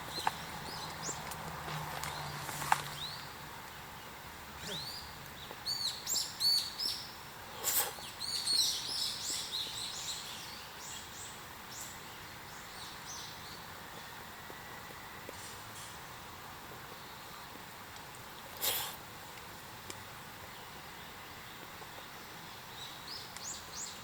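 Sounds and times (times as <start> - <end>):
birds chirping: 0.0 - 15.3, 20.3 - 24.0.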